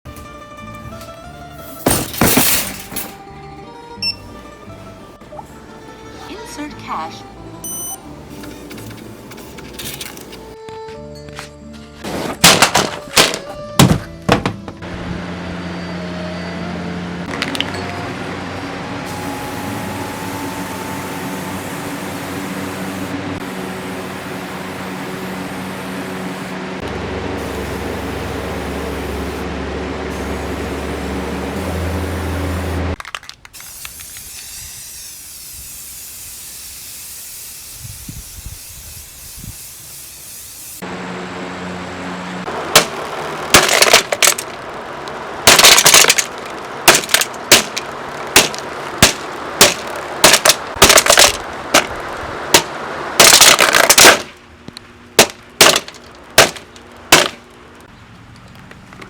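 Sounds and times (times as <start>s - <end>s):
box fan air rush and hum: 12.0s - 33.0s, 33.6s - 57.9s
loud sharp cracks: 42.7s - 44.6s, 45.4s - 54.4s, 55.2s - 57.5s.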